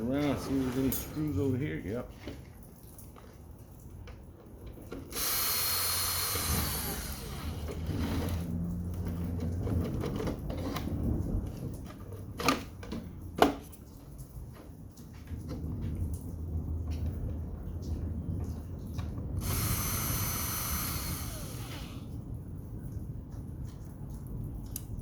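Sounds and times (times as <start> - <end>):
power drill whirring: 5.1 - 8.5, 19.4 - 22.1.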